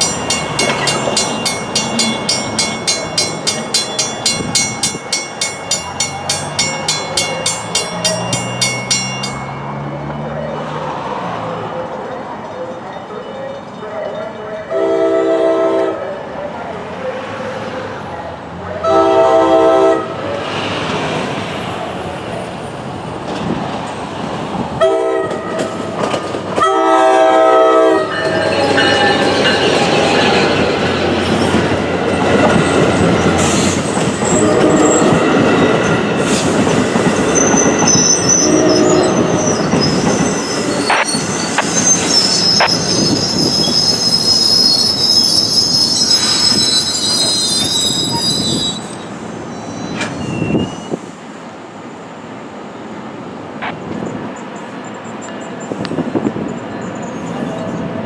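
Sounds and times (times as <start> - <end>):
train rolling rumble: 0.0 - 12.7, 16.5 - 58.0
train horn blasts: 14.7 - 16.0, 18.8 - 20.2, 24.8 - 25.8, 26.6 - 29.6, 34.3 - 35.2, 38.0 - 39.7
high-pitched wheel squeal: 36.3 - 51.1.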